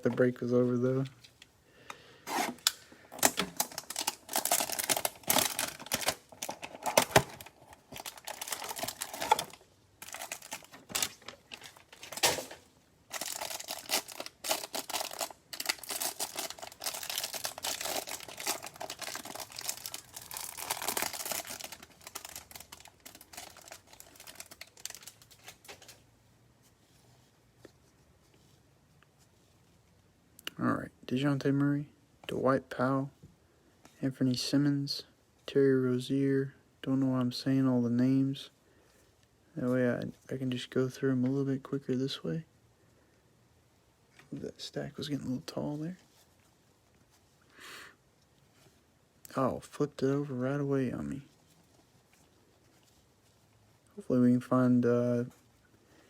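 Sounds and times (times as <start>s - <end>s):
card packs being torn open: 2.3s - 25.6s
foil wrappers crinkling: 3.2s - 26.0s.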